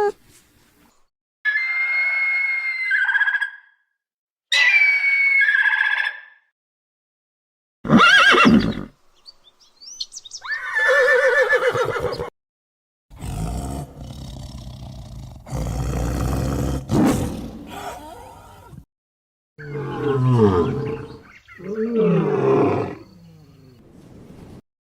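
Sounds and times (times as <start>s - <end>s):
horse whinnying: 7.9s - 8.9s, 10.4s - 12.3s.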